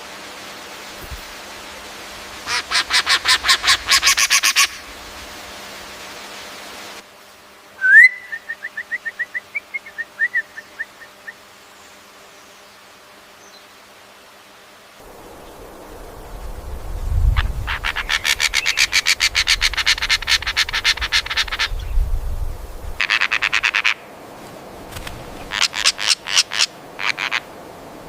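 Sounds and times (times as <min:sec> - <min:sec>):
bird calls: 0:02.4 - 0:04.9, 0:17.3 - 0:22.1, 0:23.0 - 0:24.1, 0:25.4 - 0:27.5
sharp rising whistle: 0:07.8 - 0:10.5.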